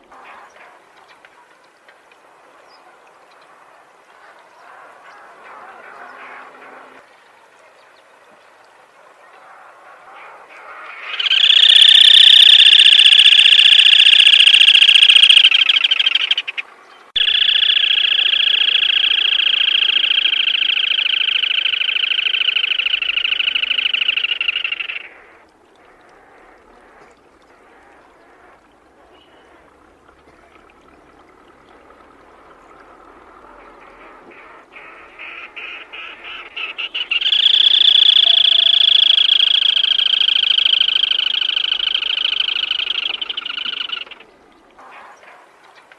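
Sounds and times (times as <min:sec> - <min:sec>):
bird pulsed notes: 0:11.0 - 0:27.2, 0:35.2 - 0:44.7
bird buzzing trills: 0:11.2 - 0:16.6, 0:17.2 - 0:25.1, 0:37.0 - 0:44.2.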